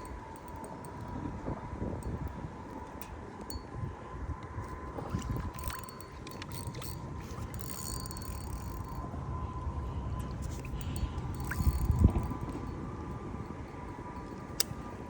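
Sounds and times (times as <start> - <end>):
wind rumbling on microphone: 0.0 - 15.0
thin high tone: 5.6 - 14.6.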